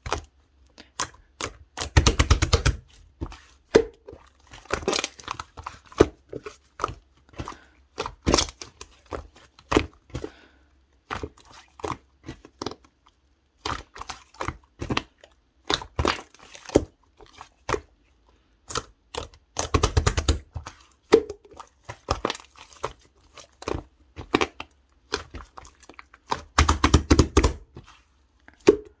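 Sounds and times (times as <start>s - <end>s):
sticky pops and clicks: 26.6s - 27.6s.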